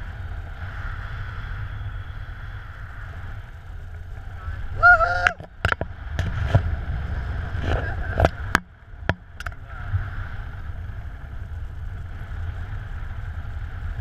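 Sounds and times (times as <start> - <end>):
wind rushing over microphone: 0.0 - 14.0
sharp clicks and knocks: 5.3 - 6.6.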